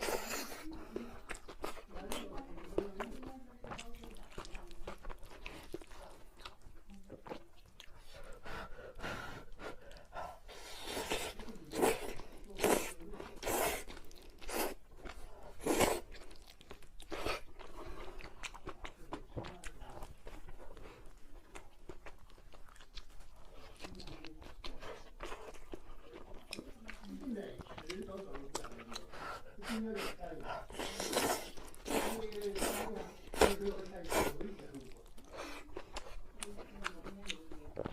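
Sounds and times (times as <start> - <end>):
chewing with small clicks: 0.0 - 37.9
crunchy food being bitten: 30.7 - 37.9.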